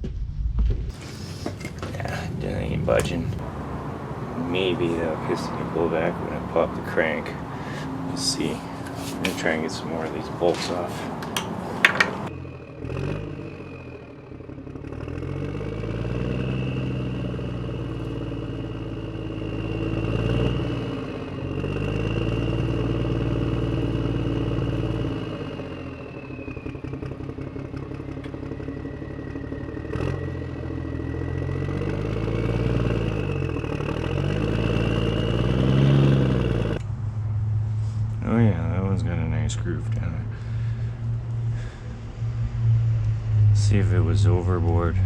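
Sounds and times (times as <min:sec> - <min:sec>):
high whine: 0:00.0 - 0:45.0
motor running: 0:40.3 - 0:43.5.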